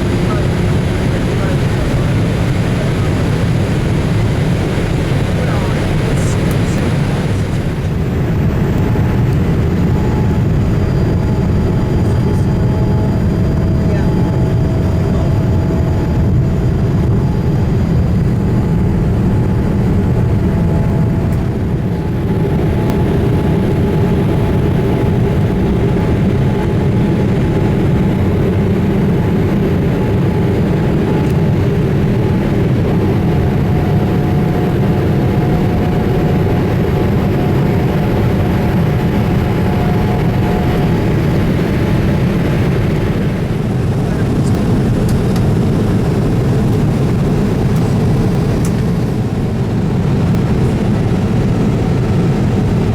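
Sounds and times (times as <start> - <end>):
faint steady tones: 0.0 - 8.1
airplane cabin engine rumble: 0.0 - 52.9.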